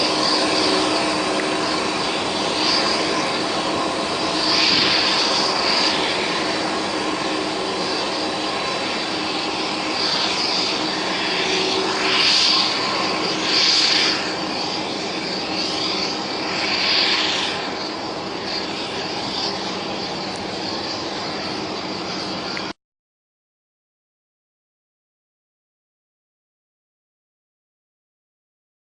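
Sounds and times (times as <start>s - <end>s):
jet engines rumbling and whining: 0.0s - 22.8s.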